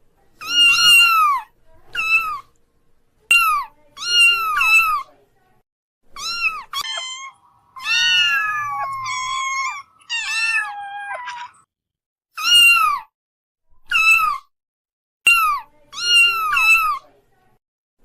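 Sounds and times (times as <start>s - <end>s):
kittens meowing: 0.4s - 2.5s, 6.2s - 11.7s, 12.4s - 13.1s.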